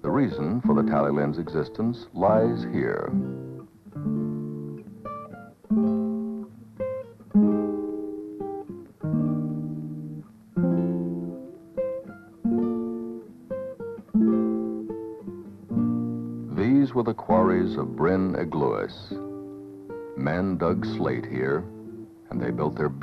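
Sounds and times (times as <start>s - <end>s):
acoustic guitar music: 0.0s - 23.0s.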